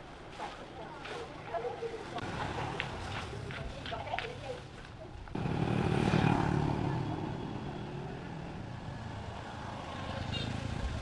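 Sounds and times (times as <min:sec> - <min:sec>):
vehicle passing by: 0:05.3 - 0:11.0.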